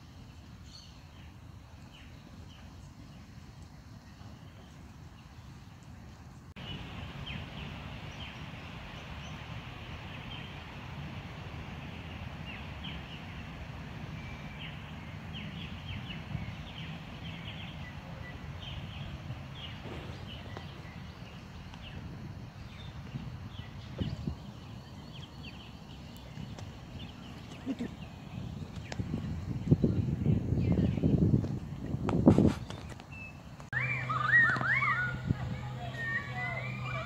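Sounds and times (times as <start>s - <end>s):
birds chirping: 0.1s - 37.0s
steady low rumble: 6.1s - 32.5s, 33.5s - 37.0s.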